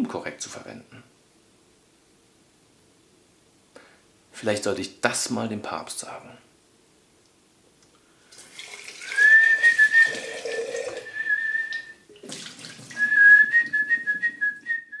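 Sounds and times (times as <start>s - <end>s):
whistling long notes: 9.1s - 10.4s, 11.0s - 12.0s, 13.0s - 15.0s.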